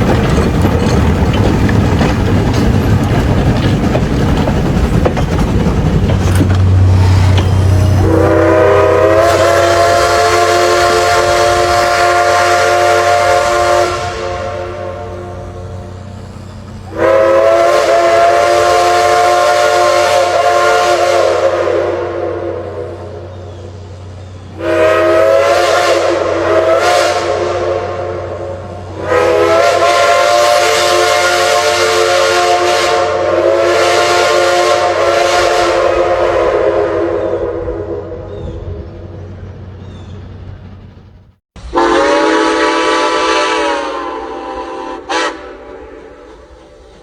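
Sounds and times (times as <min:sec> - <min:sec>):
steam locomotive whistle blasts: 0:06.7 - 0:16.0, 0:16.8 - 0:23.4, 0:24.5 - 0:38.7, 0:41.6 - 0:47.0.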